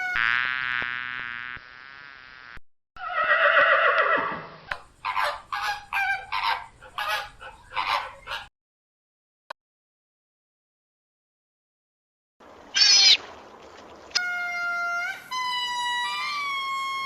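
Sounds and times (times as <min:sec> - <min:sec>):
farm animal calling: 0:05.0 - 0:08.5, 0:12.7 - 0:13.2.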